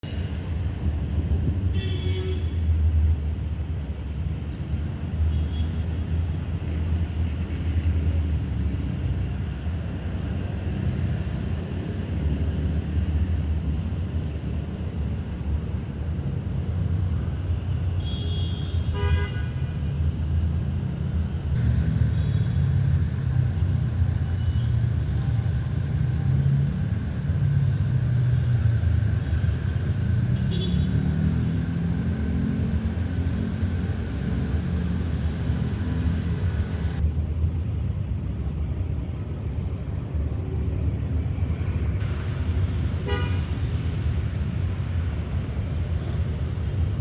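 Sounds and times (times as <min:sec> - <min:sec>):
low outdoor rumble: 0:20.0 - 0:43.0.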